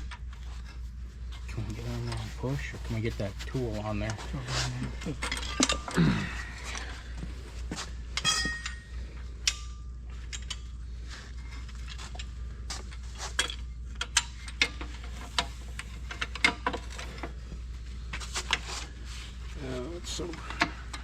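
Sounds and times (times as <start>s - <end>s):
low steady hum: 0.0s - 21.0s
metallic clicks and knocks of tools: 9.4s - 10.8s, 12.9s - 17.2s.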